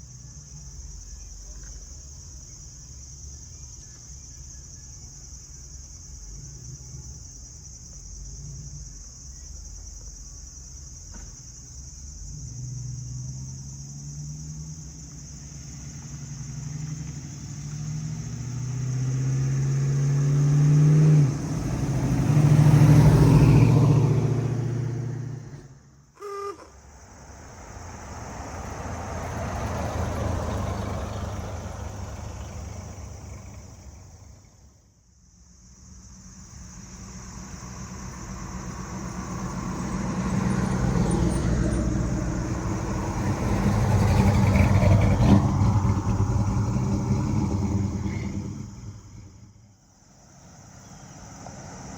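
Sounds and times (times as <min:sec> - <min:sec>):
high insect buzz: 0:00.0 - 0:29.7
car engine accelerating: 0:11.8 - 0:34.9, 0:35.8 - 0:51.9
vehicle passing: 0:12.4 - 0:26.1, 0:26.8 - 0:35.0, 0:35.8 - 0:51.9.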